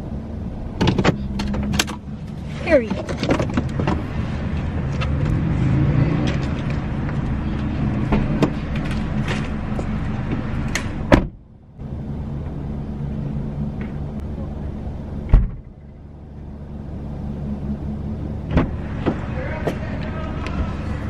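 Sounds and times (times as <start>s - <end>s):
car engine running: 0.0s - 21.0s
sharp clicks and knocks: 0.8s - 5.4s.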